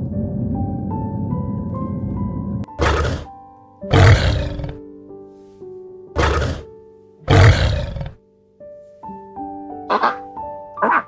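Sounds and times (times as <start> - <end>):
soft piano music: 0.0 - 7.3, 8.1 - 11.0
lion roaring: 2.8 - 3.3, 3.9 - 4.8, 6.2 - 6.7, 7.3 - 8.2.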